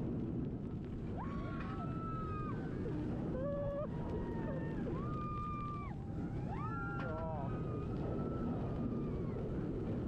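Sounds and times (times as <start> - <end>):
roller coaster rumble: 0.0 - 10.0.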